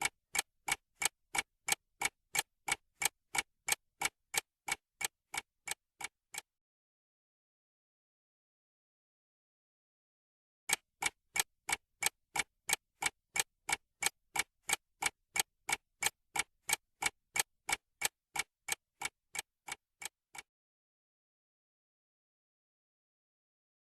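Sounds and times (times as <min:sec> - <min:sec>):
clock ticking: 0:00.0 - 0:06.5, 0:10.7 - 0:20.5.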